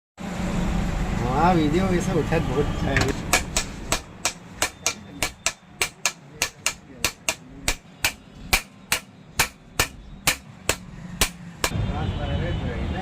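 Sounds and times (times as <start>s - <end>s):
hammer striking metal: 3.0s - 11.8s.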